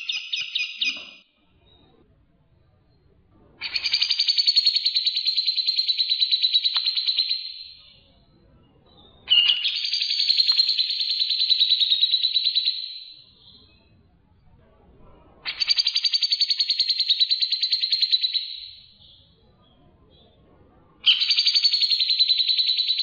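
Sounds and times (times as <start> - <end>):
songbird trilling: 0.0 - 1.2, 3.6 - 8.0, 9.3 - 13.5, 15.5 - 18.8, 21.0 - 23.0.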